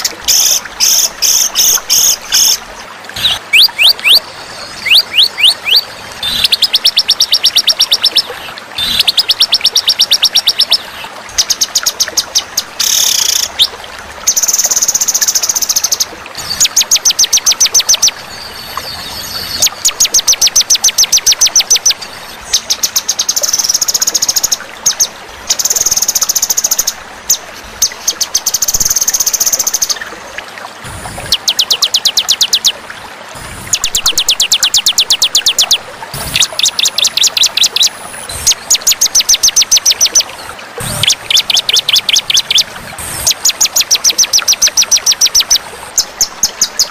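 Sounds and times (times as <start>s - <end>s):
songbird trilling: 33.8s - 37.9s, 40.8s - 42.7s.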